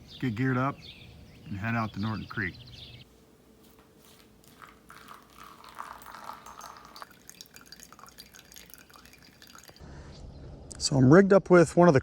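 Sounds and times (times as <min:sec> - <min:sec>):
water dripping and trickling: 0:04.1 - 0:09.8.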